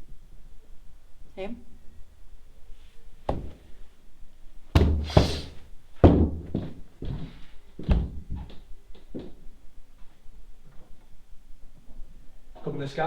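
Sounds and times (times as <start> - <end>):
heavy thuds and knocks: 3.3 - 3.8, 4.8 - 6.8.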